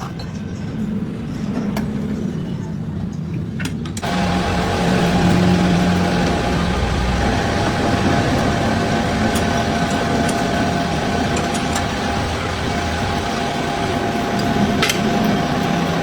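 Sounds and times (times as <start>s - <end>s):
machine humming and whining: 4.0s - 16.0s.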